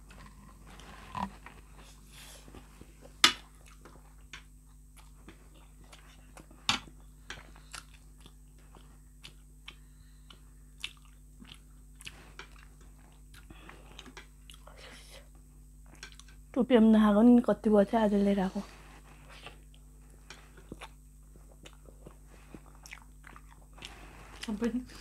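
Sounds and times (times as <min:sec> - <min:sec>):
chewing and mouth smacks: 0:03.4 - 0:06.6, 0:07.3 - 0:14.7, 0:15.8 - 0:16.4, 0:19.4 - 0:24.6.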